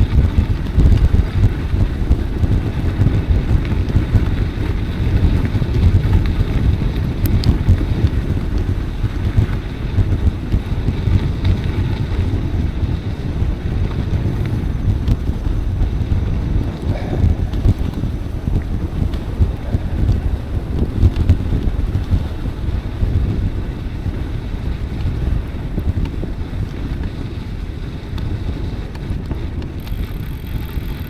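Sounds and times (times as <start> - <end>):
faint clicks: 0.0 - 12.4, 28.9 - 31.0
wind buffeting microphone: 0.0 - 31.0.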